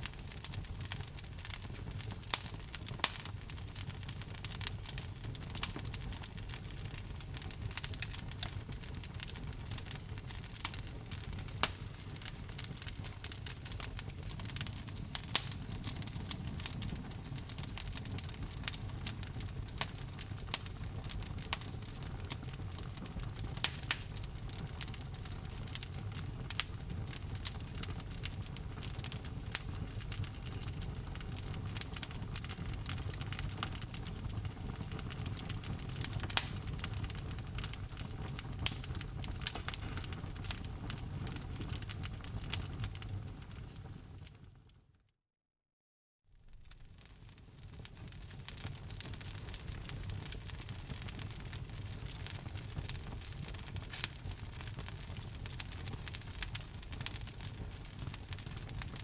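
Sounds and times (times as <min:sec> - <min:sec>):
sharp pops from fire: 0:00.0 - 0:44.4, 0:46.4 - 0:59.0
low rumble of flames: 0:00.0 - 0:44.6, 0:46.4 - 0:59.0
wood fire crackling: 0:00.0 - 0:44.6, 0:46.4 - 0:59.0.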